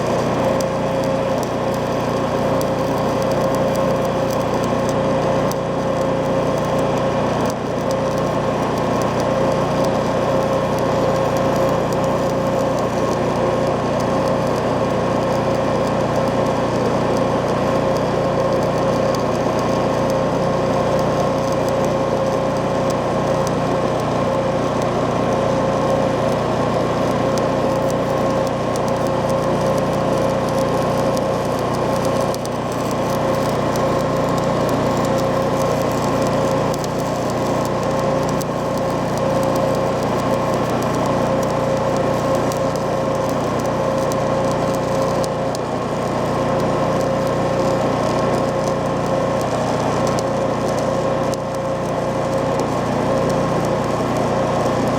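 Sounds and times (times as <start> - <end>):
machine humming: 27.1 - 47.0.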